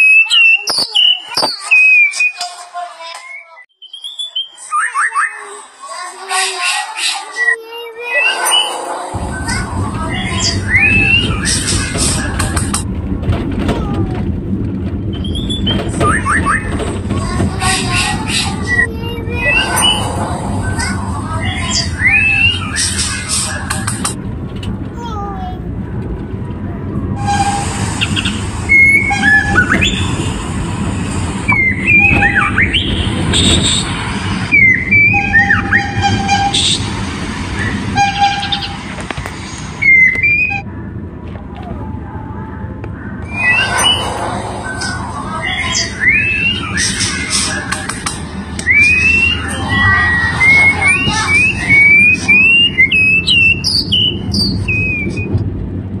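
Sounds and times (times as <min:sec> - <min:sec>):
songbird whistling: 0:03.2 - 0:05.4, 0:43.3 - 0:44.1, 0:44.8 - 0:47.6, 0:48.6 - 0:55.3
steady low rumble: 0:07.9 - 0:56.0.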